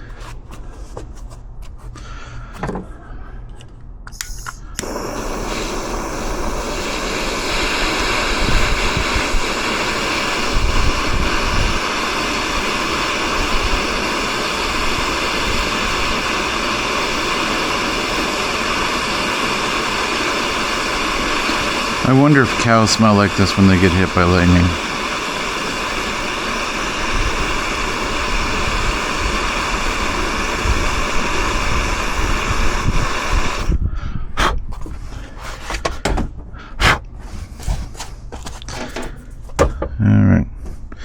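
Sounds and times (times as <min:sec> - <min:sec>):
torch flame hissing: 0:04.4 - 0:33.8.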